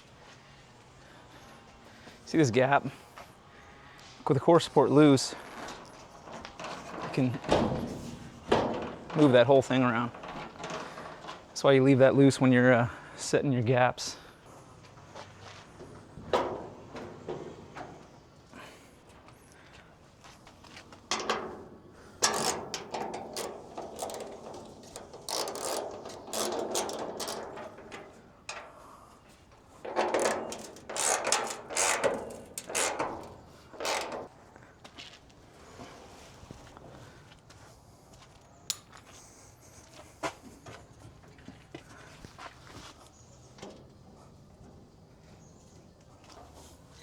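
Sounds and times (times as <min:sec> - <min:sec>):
ratchet wrench clicking: 0:22.2 - 0:27.4, 0:30.2 - 0:33.0.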